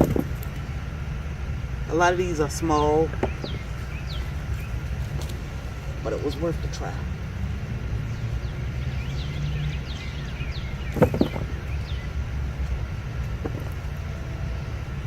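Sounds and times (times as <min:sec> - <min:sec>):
low outdoor rumble: 0:00.0 - 0:15.0
small birds chirping: 0:00.0 - 0:15.0
sharp knocks: 0:10.9 - 0:11.6, 0:13.4 - 0:13.8.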